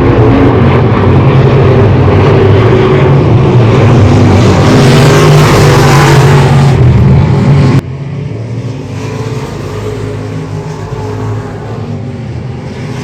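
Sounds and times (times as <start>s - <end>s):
race car engines: 0.0s - 13.0s.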